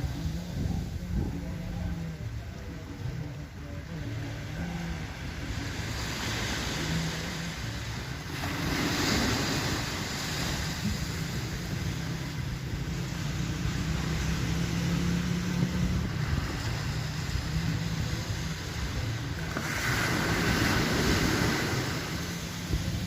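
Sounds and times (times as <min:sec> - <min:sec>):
wind buffeting microphone: 0:00.0 - 0:05.9, 0:13.9 - 0:23.0
surf: 0:00.0 - 0:23.0.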